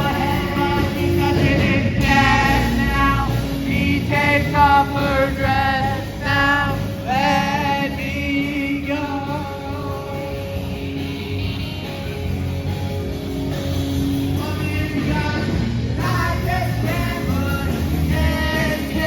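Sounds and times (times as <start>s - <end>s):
person singing with vibrato: 0.0s - 12.1s, 14.2s - 19.0s
live band playing: 0.0s - 19.0s.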